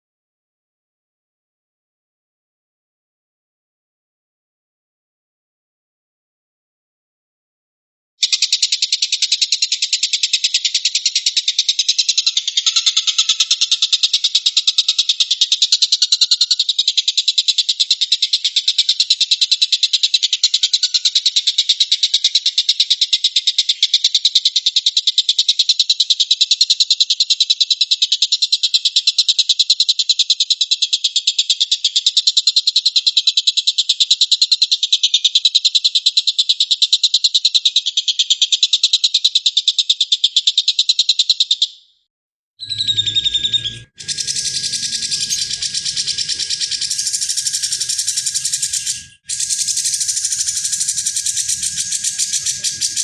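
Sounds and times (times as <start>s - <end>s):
bird buzzing trill: 42.6s - 53.0s.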